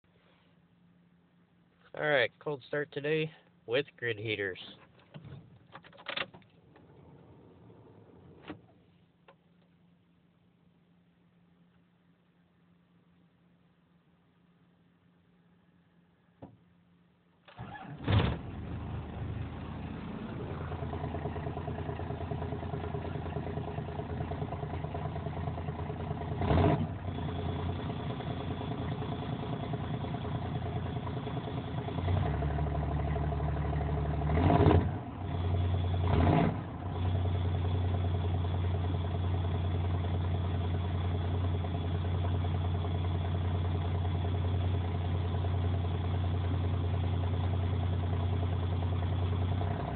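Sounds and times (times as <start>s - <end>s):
diesel engine cranking and running: 17.5s - 49.9s.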